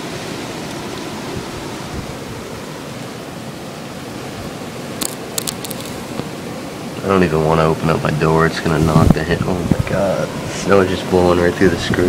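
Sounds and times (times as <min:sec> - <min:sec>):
blizzard wind blowing: 0:00.0 - 0:12.0
sharp clicks: 0:05.0 - 0:06.3.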